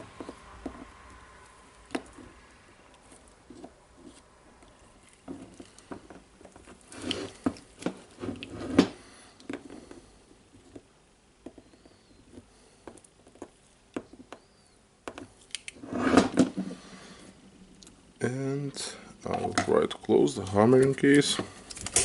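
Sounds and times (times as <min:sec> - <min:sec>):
small parts clicking and scraping: 0:15.1 - 0:16.8, 0:19.2 - 0:22.0.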